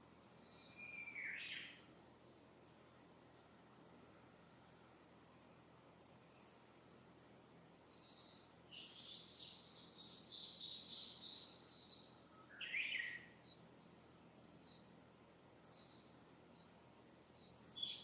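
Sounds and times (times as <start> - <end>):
faint background hiss: 0.0 - 18.0
lower bird call: 0.4 - 1.8
birds chirping: 0.4 - 2.0, 7.9 - 14.9, 15.6 - 18.0.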